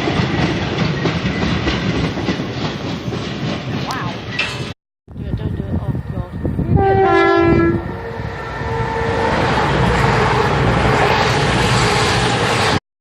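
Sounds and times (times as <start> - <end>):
train rumbling past: 0.0 - 12.8
train horn two-note blast: 6.6 - 12.4.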